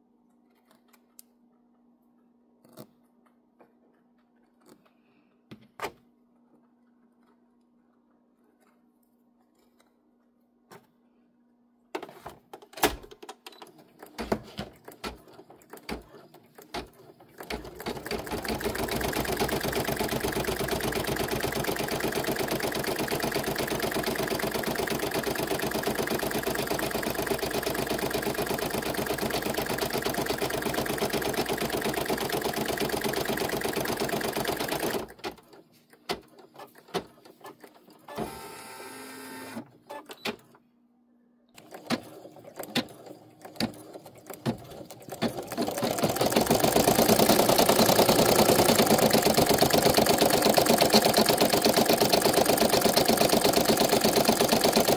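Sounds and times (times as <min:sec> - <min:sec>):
embroidery machine stitching: 0:14.9 - 0:35.5, 0:41.6 - 0:54.9.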